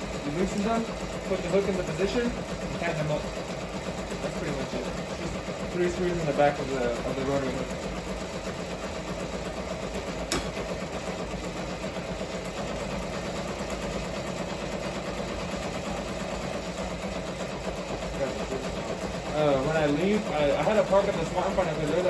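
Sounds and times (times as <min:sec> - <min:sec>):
embroidery machine running: 0:00.0 - 0:22.0
sharp click: 0:10.3 - 0:10.6.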